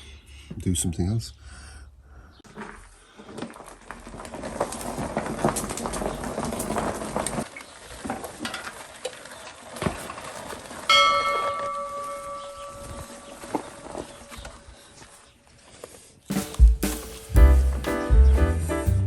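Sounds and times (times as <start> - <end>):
metal piece ringing: 10.9 - 13.8.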